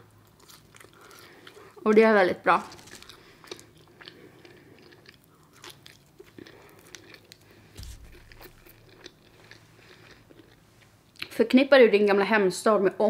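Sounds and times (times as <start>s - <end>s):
crunchy snack chewing: 0.2s - 1.8s, 2.6s - 10.6s
low thud: 7.8s - 9.0s.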